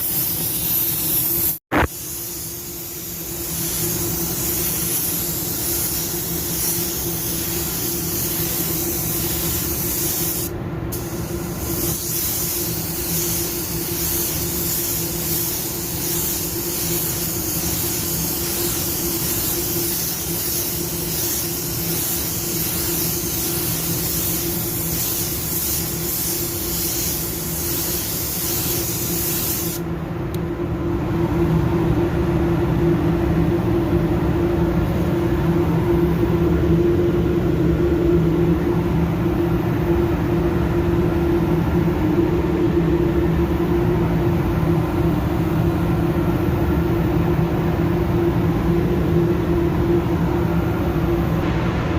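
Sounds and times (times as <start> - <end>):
spray gun hissing: 0.0 - 29.8
low machine hum: 29.8 - 51.9.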